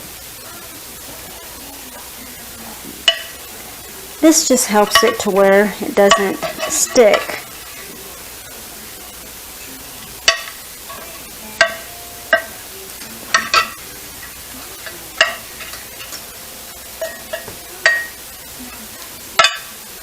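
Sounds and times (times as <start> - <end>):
steady hiss: 0.0 - 20.0
spoon clinking against pan: 3.0 - 3.4, 4.8 - 5.4, 6.0 - 7.4, 10.2 - 18.8, 19.4 - 19.8.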